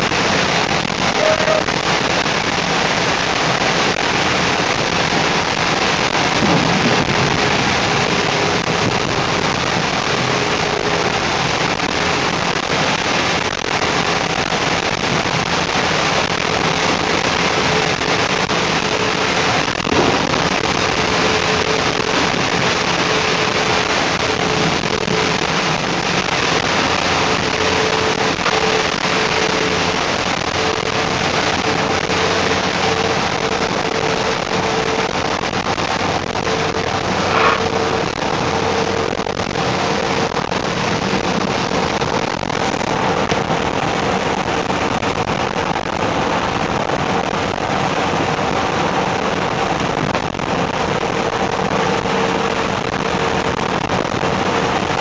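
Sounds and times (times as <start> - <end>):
heavy rain: 0.0 - 55.0
mid-pitched hum: 0.0 - 55.0.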